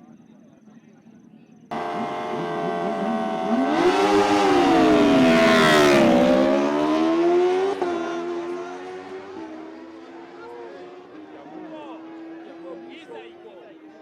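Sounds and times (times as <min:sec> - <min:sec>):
motorcycle engine revving: 0:01.7 - 0:10.2.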